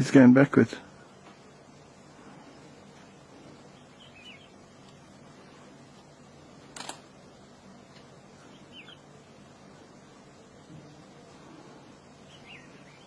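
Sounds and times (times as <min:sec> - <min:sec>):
faint low hum: 0:00.0 - 0:13.0
bird chirping: 0:03.6 - 0:04.8, 0:08.4 - 0:09.2, 0:12.2 - 0:13.0
sharp click: 0:06.8 - 0:07.0.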